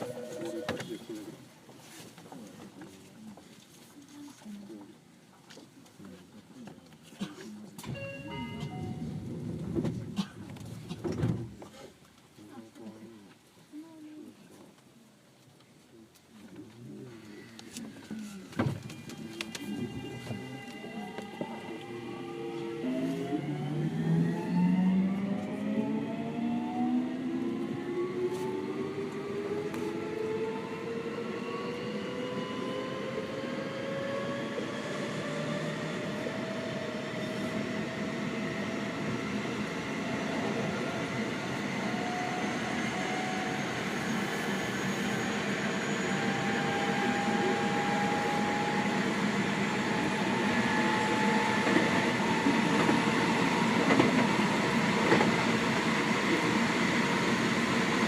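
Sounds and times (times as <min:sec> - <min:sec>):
rail and running noise: 0:07.8 - 0:11.8, 0:16.4 - 0:58.0
train motors whining rising pitch: 0:19.8 - 0:58.0.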